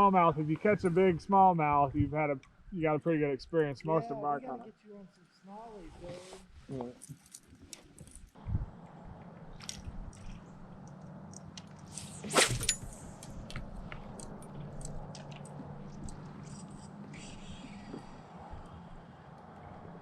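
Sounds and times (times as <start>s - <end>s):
steady low hum: 7.8s - 20.0s.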